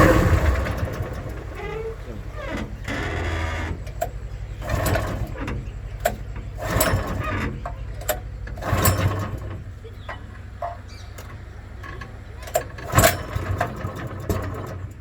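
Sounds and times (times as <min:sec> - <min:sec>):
engine surge: 0:00.0 - 0:06.0
small petrol pump engine running: 0:00.0 - 0:15.0.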